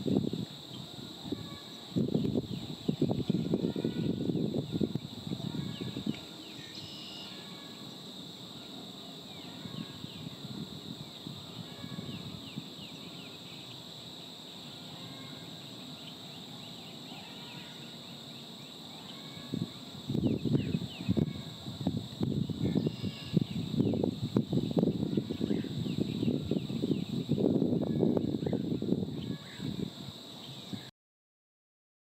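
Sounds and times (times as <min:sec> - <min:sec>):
steady high hum: 0:00.0 - 0:30.9
small birds chirping: 0:12.0 - 0:14.7, 0:15.5 - 0:21.4, 0:22.4 - 0:27.4.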